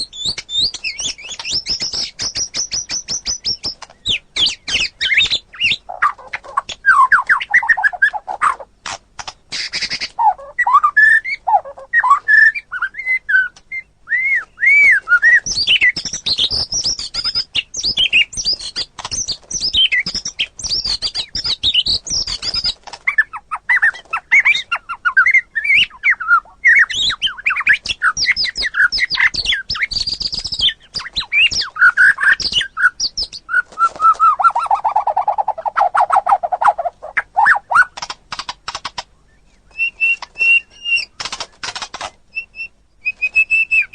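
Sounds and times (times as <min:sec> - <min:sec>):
bird singing: 0:00.0 - 0:38.1, 0:38.8 - 0:43.9.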